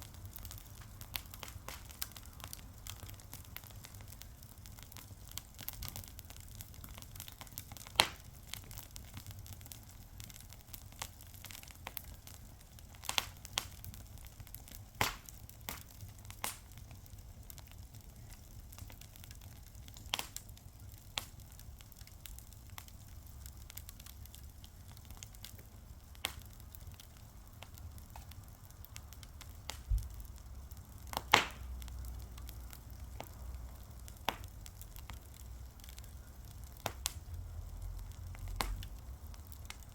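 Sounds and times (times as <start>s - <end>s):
fire crackling with sharp pops: 0.0s - 39.9s.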